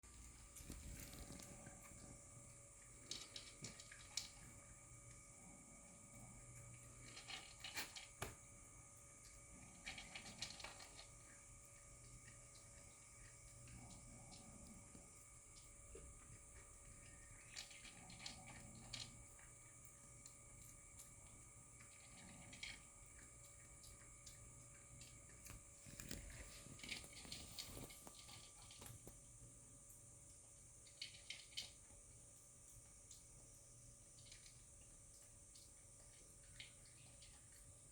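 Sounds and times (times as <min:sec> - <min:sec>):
faint background hum: 0:00.0 - 0:37.9
dog eating with crunches: 0:00.2 - 0:02.2, 0:06.6 - 0:08.1, 0:09.6 - 0:11.4, 0:12.0 - 0:19.6, 0:20.6 - 0:29.2.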